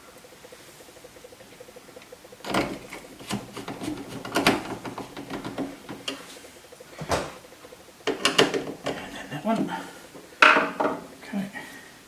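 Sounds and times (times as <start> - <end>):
parts clicking and knocking: 1.4 - 6.3, 8.0 - 11.1.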